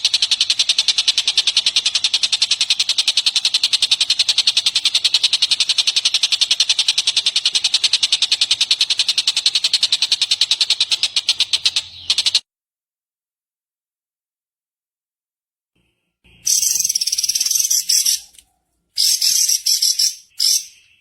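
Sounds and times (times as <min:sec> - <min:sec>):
songbird rapid high trill: 0:16.3 - 0:18.4, 0:19.0 - 0:21.0.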